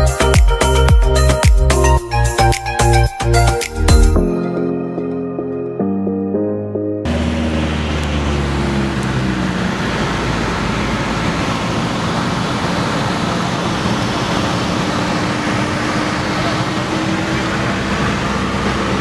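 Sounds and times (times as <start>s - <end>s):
aircraft engine and airflow rush: 7.0s - 19.0s.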